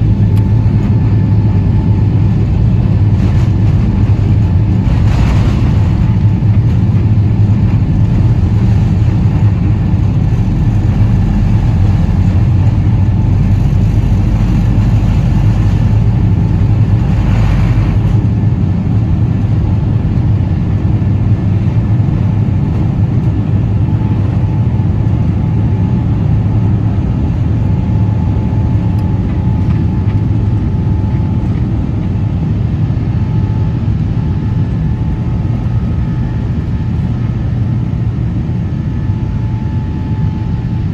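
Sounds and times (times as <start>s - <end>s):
deep rumble: 0.0s - 40.9s
jet engine roar in cabin: 0.0s - 40.9s.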